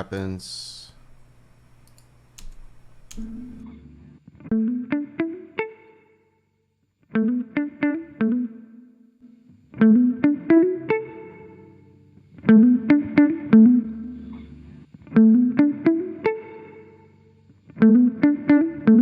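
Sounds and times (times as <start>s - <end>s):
clicks: 1.2s - 3.6s
plucked guitar loop: 4.4s - 6.0s, 7.1s - 17.0s, 17.8s - 19.0s.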